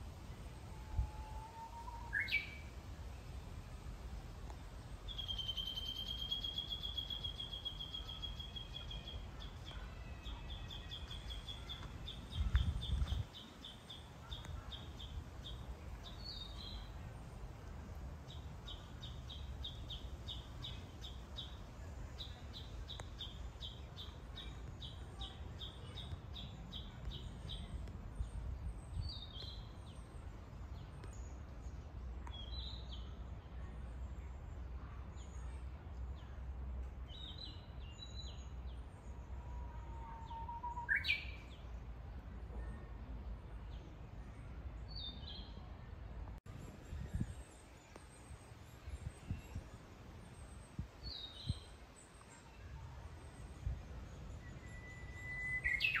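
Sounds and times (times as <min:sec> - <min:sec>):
long whistled bird call: 0:01.1 - 0:02.7, 0:54.6 - 0:56.0.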